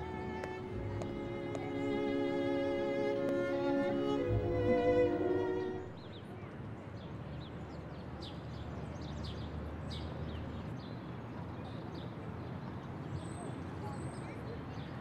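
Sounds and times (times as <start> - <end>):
low rumble of background noise: 0.0 - 9.0.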